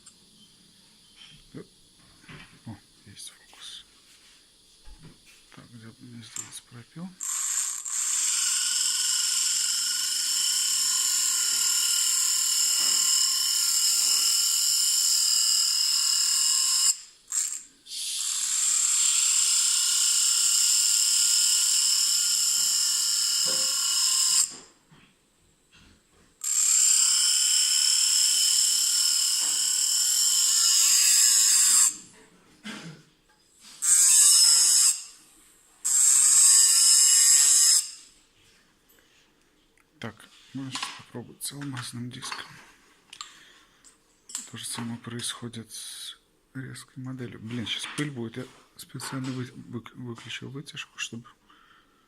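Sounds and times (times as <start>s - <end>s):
rotary tool motor whining: 7.2s - 24.7s, 26.4s - 32.0s, 33.8s - 35.2s, 35.8s - 38.1s.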